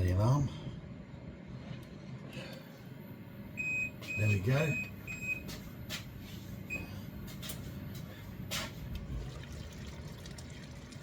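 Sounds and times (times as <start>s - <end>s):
kitchen timer beep: 3.6s - 5.4s
liquid simmering in a wok: 8.9s - 11.0s.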